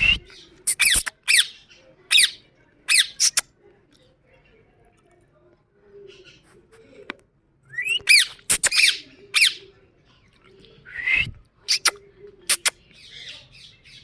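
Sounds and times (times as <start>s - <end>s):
parakeet squawking: 8.1s - 9.6s.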